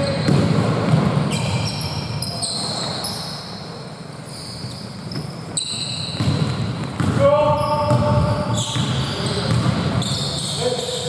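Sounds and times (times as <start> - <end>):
basketball bouncing: 0.0 - 1.6, 6.1 - 10.0
shoes squeaking on court: 0.0 - 11.0.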